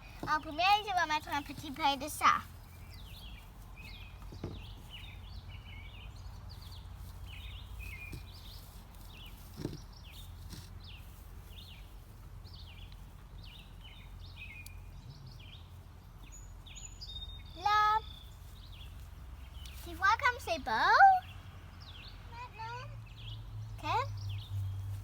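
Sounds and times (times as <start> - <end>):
small birds chirping: 0.0 - 25.0
soft knocks: 4.2 - 4.8.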